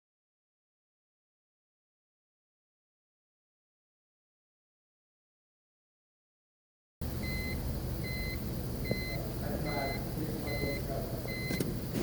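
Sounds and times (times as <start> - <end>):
high electronic beeps: 7.2 - 11.6.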